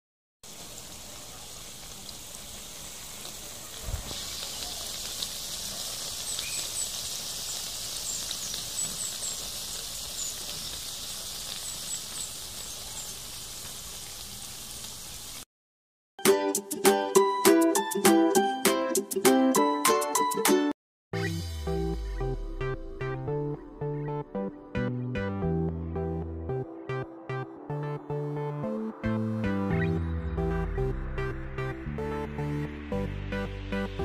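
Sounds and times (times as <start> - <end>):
food sizzling in oil: 0.4 - 15.5.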